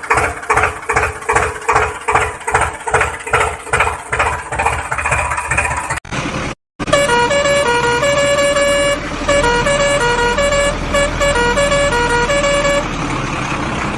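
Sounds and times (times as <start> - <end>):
electronic beeping tune: 7.0 - 12.8.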